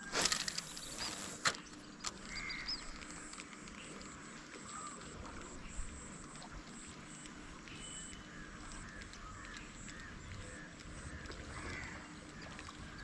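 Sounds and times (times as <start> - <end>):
birds calling: 0.4 - 3.0.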